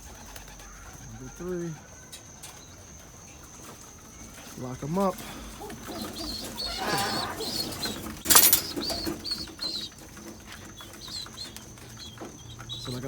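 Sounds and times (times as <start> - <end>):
pigeons flapping and shuffling: 0.0 - 13.0.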